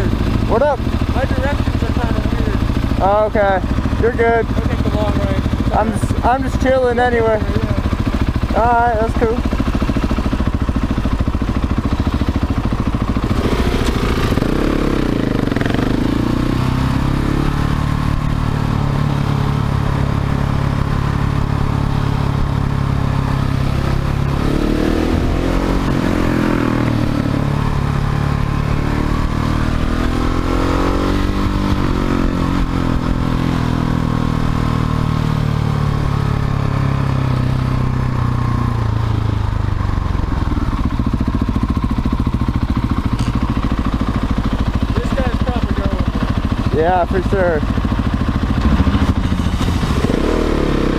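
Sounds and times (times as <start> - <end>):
motorcycle engine accelerating: 0.0 - 50.9.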